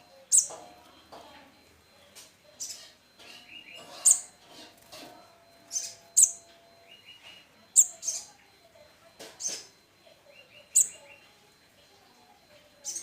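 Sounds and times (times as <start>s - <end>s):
fledglings chirping: 0.0s - 0.6s, 2.0s - 4.4s, 5.5s - 8.7s, 9.4s - 11.4s, 12.8s - 13.0s.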